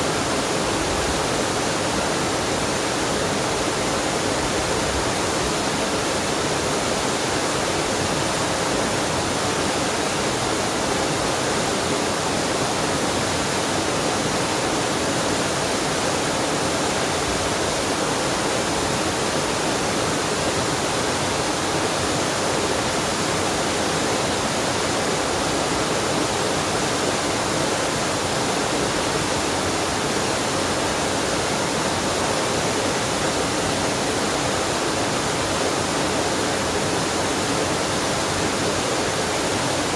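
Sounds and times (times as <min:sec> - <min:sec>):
waterfall and stream rushing: 0:00.0 - 0:39.9.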